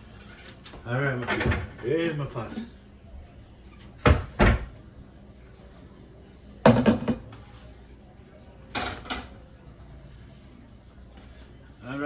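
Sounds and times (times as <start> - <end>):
kitchenware clattering: 0.0 - 2.8, 6.6 - 7.4, 8.7 - 9.4
kitchenware clunking: 6.6 - 7.3.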